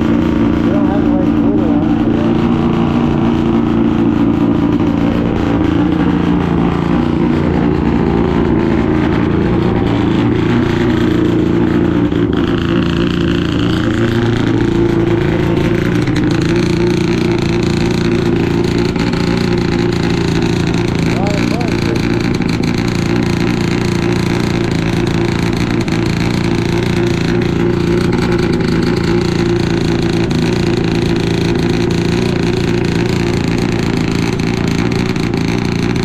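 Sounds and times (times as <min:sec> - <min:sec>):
car engines idling: 0:00.0 - 0:36.0.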